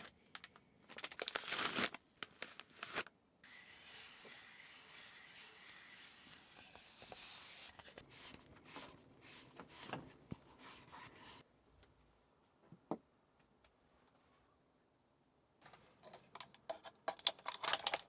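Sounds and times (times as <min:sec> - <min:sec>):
rustling and scraping of handling: 0:01.2 - 0:11.5.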